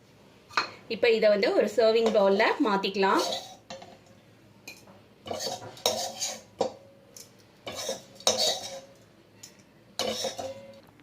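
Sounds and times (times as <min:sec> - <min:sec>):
spoon scraping metal pan: 0:02.0 - 0:04.0, 0:04.7 - 0:06.8, 0:07.6 - 0:10.8.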